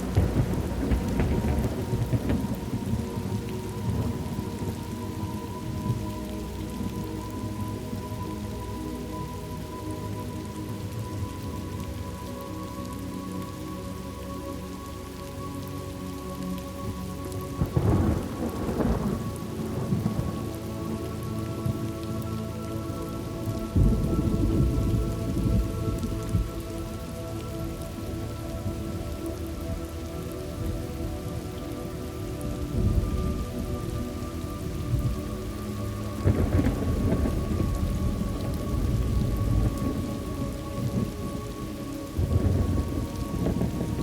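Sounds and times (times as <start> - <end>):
rolling thunder: 0.0 - 6.2, 17.8 - 20.4, 23.4 - 26.7, 36.2 - 44.0
soft music pad: 0.0 - 44.0
steady rainfall: 0.0 - 44.0.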